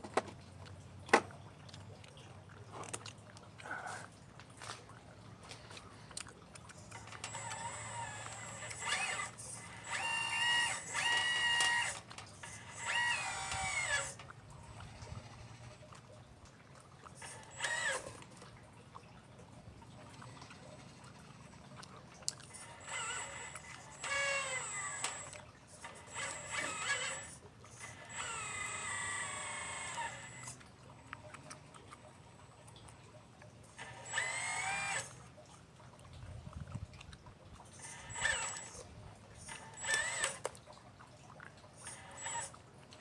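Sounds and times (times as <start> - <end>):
model excavator motors whining: 6.5 - 16.1, 17.1 - 18.4, 19.9 - 31.7, 33.7 - 35.3, 37.6 - 40.6, 41.7 - 43.0.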